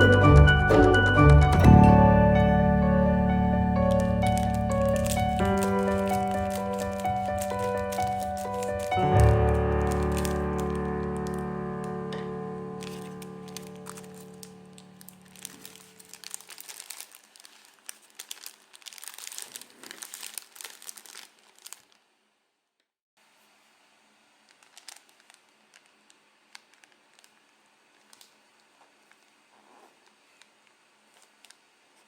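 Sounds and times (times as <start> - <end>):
background music: 0.0 - 15.8
dense crackling: 3.6 - 21.9.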